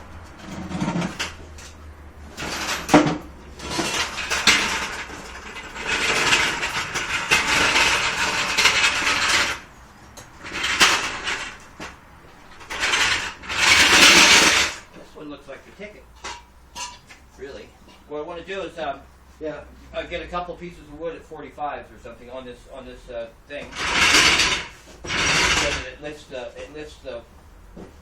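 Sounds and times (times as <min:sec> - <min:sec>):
metal scraping clatter: 0:00.0 - 0:15.0, 0:16.1 - 0:17.0, 0:23.5 - 0:26.7
metal jack clanking and rattling: 0:00.4 - 0:09.7, 0:10.4 - 0:14.9, 0:16.2 - 0:17.0, 0:23.7 - 0:26.0.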